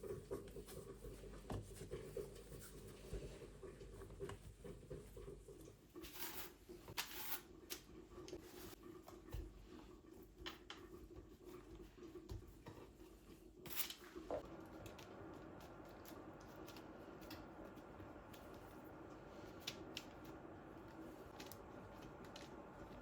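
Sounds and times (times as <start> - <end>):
low steady hum: 8.2 - 23.0.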